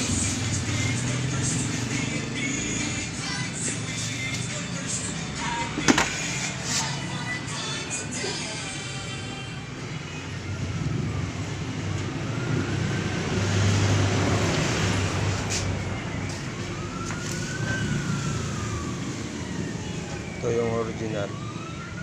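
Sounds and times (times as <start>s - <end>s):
vehicle passing: 0.0s - 7.5s, 10.3s - 20.6s
traffic noise: 0.0s - 22.0s
siren wailing: 9.9s - 22.0s.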